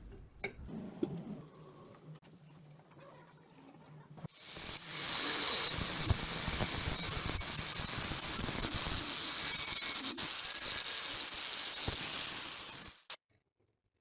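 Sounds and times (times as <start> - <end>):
steady hiss: 4.3 - 13.2.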